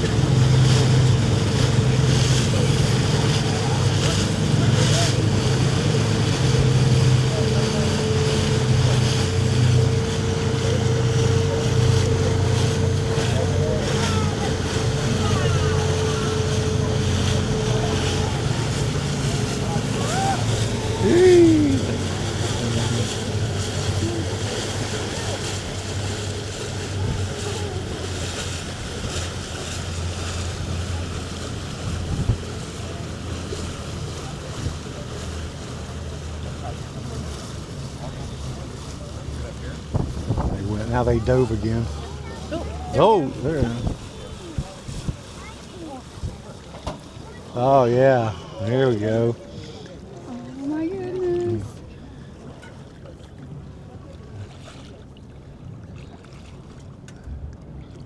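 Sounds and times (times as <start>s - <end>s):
wind buffeting microphone: 0.0s - 35.6s, 38.1s - 47.6s
boat engine droning: 0.0s - 58.0s
water washing: 0.0s - 58.0s
wind on microphone: 31.8s - 32.6s, 39.9s - 40.8s, 43.3s - 45.2s.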